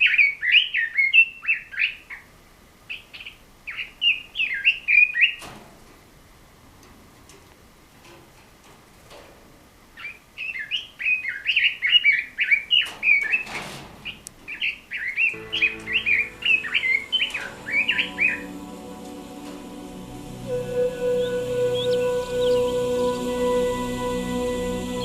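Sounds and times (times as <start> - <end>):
bird warbling song: 10.0 - 13.4, 14.1 - 18.7, 20.5 - 23.6
soft background music: 15.4 - 25.0.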